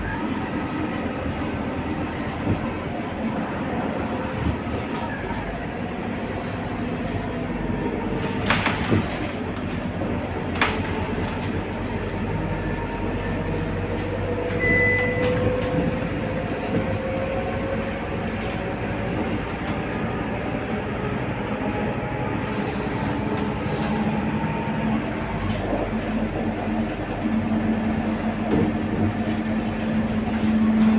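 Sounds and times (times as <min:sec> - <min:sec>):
bus diesel engine running: 0:00.0 - 0:30.9.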